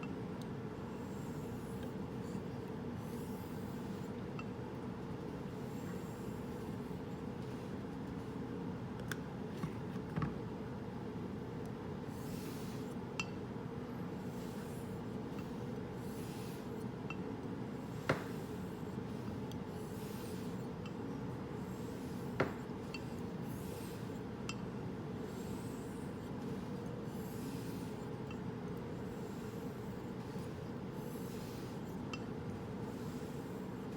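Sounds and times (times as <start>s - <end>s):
razor scraping on whetstone: 17.9s - 19.0s.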